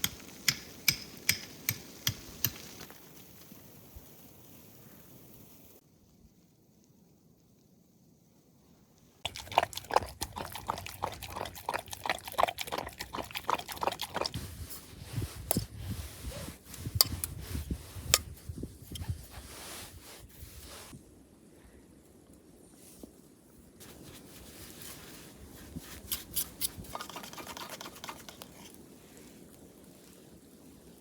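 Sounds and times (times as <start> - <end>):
dog lapping water: 9.2 - 14.4.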